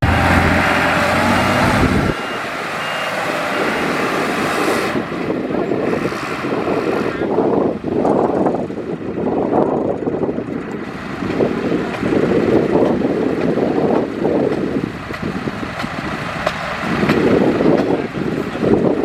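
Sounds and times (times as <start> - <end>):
bulldozer diesel engine rumbling: 0.0 - 19.0.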